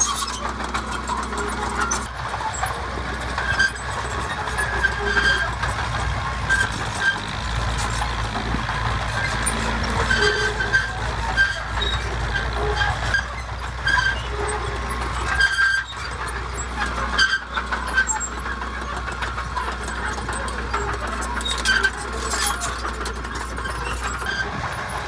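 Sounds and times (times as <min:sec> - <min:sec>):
high-pitched squeaks: 0:00.0 - 0:02.7, 0:03.3 - 0:16.2
diesel machinery rumbling: 0:00.0 - 0:25.0.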